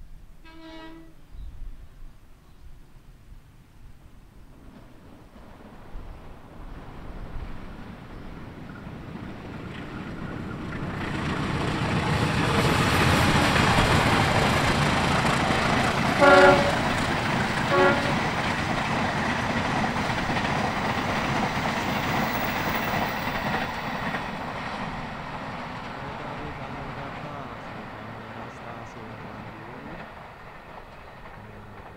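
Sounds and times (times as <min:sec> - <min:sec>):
train horn blasts: 0:00.4 - 0:01.3, 0:16.2 - 0:17.0, 0:17.6 - 0:18.4
train passing at speed: 0:04.3 - 0:31.9.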